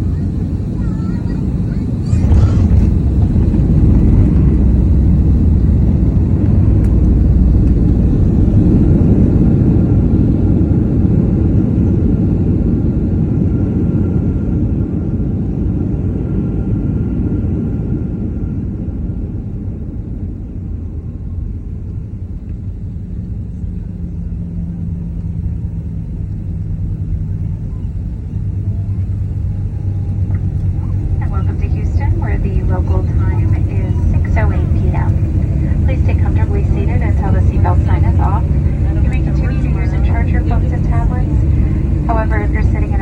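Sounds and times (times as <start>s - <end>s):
jet plane landing rumble: 0.0s - 43.0s.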